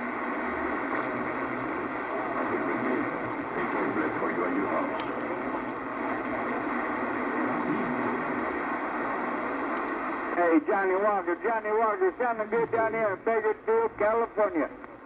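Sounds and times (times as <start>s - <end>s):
radio receiver hiss: 0.0s - 15.0s
garbled radio voices: 10.4s - 14.8s.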